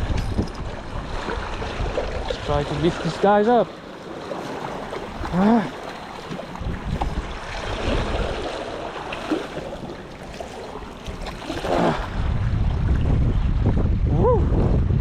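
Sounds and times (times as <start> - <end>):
wind on microphone: 0.0 - 3.2, 6.3 - 15.0
surf washing over rocks: 1.0 - 12.2.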